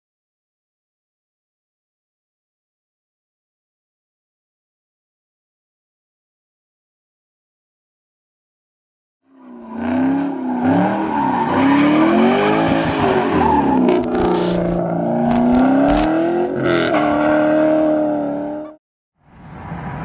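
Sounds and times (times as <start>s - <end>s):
tires spinning: 9.4s - 18.7s
car engine revving hard: 9.4s - 18.8s.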